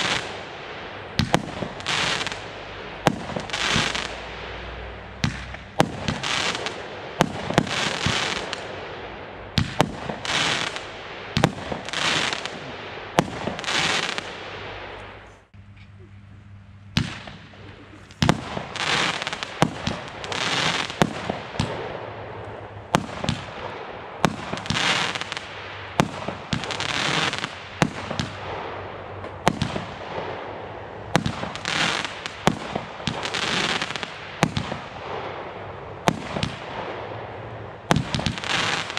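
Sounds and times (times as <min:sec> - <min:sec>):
fireworks bangs with rushing: 0:00.0 - 0:15.2, 0:16.9 - 0:38.9.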